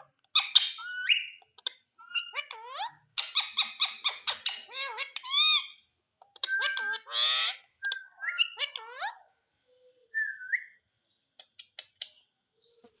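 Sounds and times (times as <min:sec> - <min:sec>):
parrot calling and whistling: 0:00.3 - 0:09.2.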